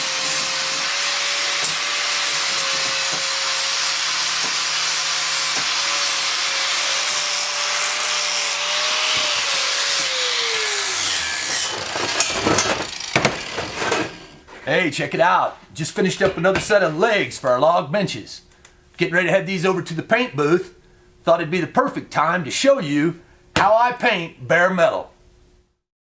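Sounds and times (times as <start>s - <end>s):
power tool whining: 0.0s - 14.4s.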